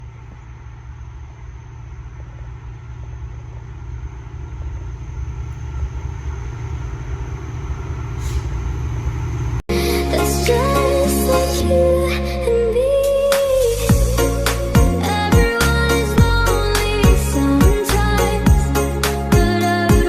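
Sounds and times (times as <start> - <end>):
diesel locomotive rumble: 0.0 - 20.0
music: 9.7 - 20.0.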